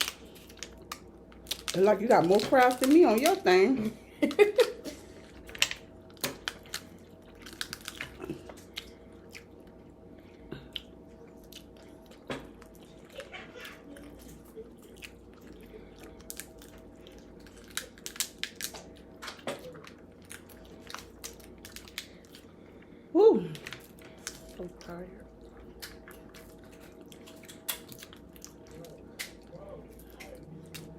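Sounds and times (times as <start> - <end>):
chewing and mouth sounds: 5.1 - 30.9
crab shell cracking: 5.5 - 8.8, 16.2 - 22.2.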